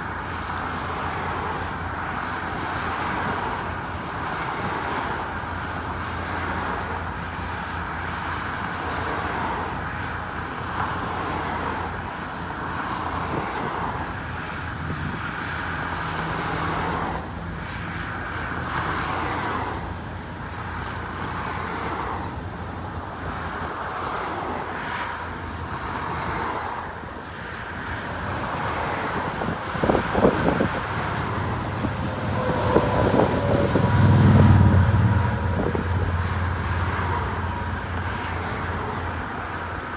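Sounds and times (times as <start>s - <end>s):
cars driving past: 10.5s - 39.9s
deep engine passing: 28.2s - 38.9s.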